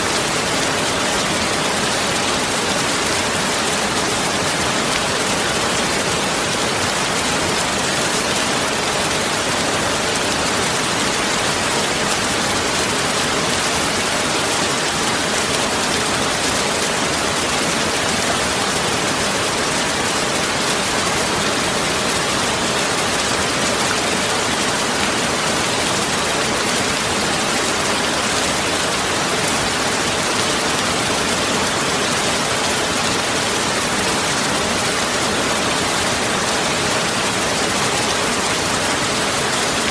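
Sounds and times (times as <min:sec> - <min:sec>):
heavy rain hiss: 0:00.0 - 0:39.9.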